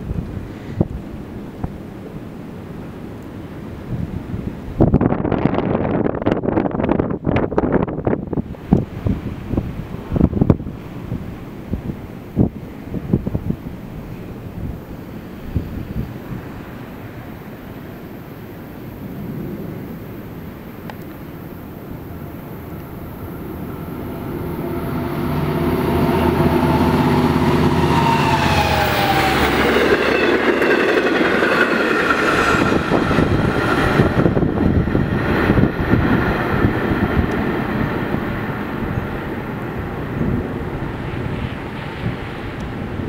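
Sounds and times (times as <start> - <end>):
diesel locomotive passing: 8.1 - 43.0
train wheels clicking over rail joints: 27.4 - 34.5.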